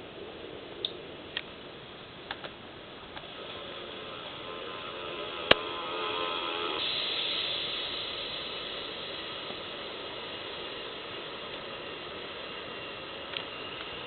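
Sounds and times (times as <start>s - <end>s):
faint jet whine: 0.0s - 14.0s
jet rushing hiss: 2.8s - 14.0s.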